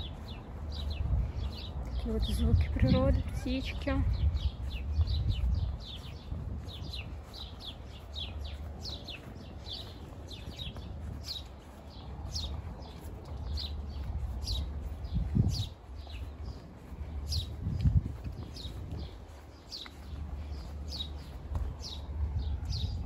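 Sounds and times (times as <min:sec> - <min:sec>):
songbirds chirping: 0:00.0 - 0:23.0.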